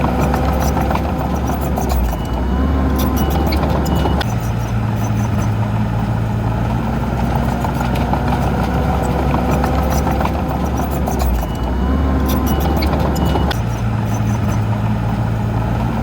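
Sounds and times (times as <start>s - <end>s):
light clicks and clanks: 0.0s - 5.6s, 7.1s - 16.0s
heavy diesel engine running: 0.0s - 16.0s.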